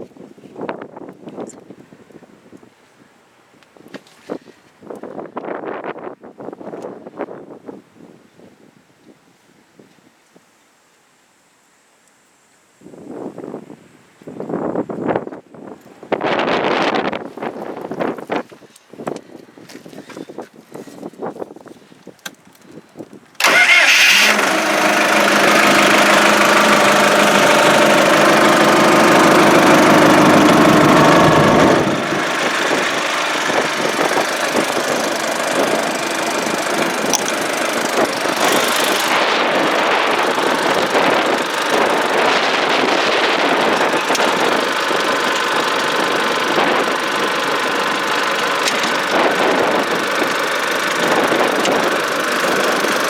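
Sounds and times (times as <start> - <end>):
tractor diesel engine running: 23.4 - 53.0.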